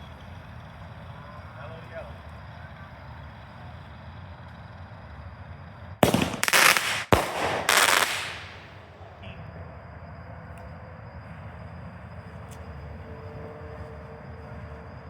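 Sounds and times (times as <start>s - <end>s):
firework crack: 6.0s - 9.2s
firework hissing: 6.0s - 9.2s.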